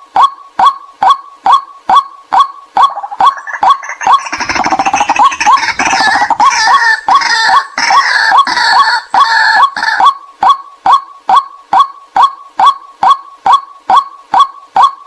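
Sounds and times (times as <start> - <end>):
bird chattering chorus: 2.4 - 12.5.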